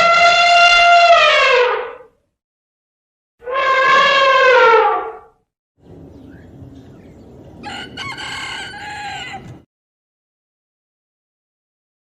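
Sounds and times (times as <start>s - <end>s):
rooster crowing: 7.6s - 9.6s.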